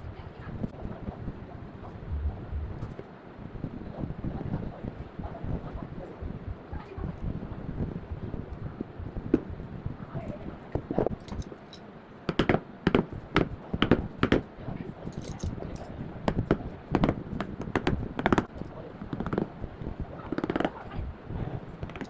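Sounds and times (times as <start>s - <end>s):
hammer striking chisel into wood: 12.3s - 14.4s.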